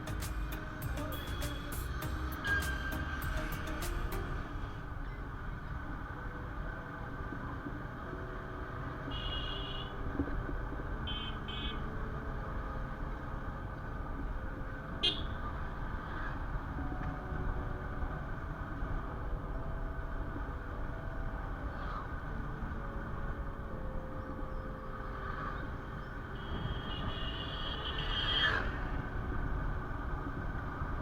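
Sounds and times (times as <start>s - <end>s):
motorcycle engine and road rumble: 0.0s - 31.0s.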